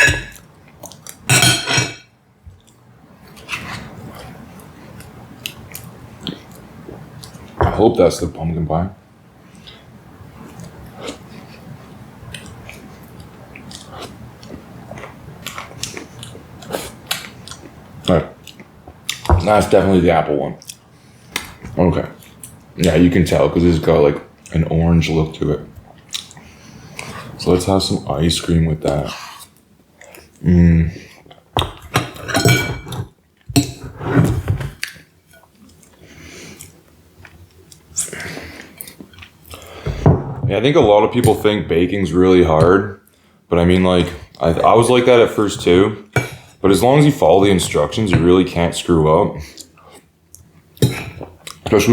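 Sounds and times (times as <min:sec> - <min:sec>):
chewing: 0:12.3 - 0:19.3, 0:25.9 - 0:27.3, 0:34.8 - 0:39.8, 0:49.5 - 0:51.7
spoon scraping a dish: 0:32.1 - 0:34.4.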